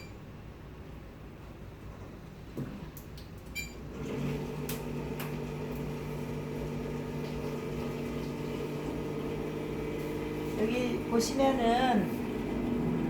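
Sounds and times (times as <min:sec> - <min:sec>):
electric pump humming: 0:03.9 - 0:13.0.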